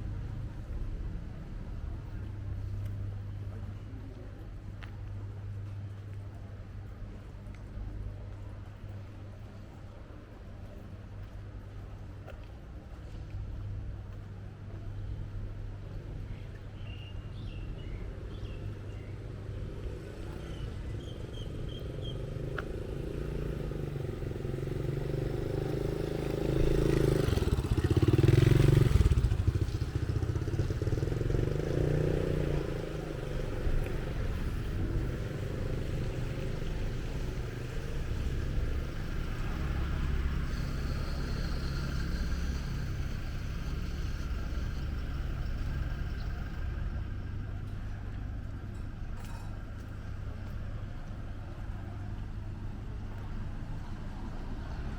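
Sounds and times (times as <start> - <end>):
street traffic: 0.0 - 54.9
vehicle passing close by: 20.4 - 46.9.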